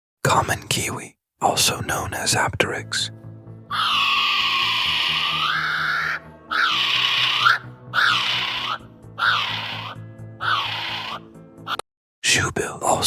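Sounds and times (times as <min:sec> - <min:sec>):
low background music: 0:01.4 - 0:13.0
kiwi shrill whistled cries: 0:03.7 - 0:11.2.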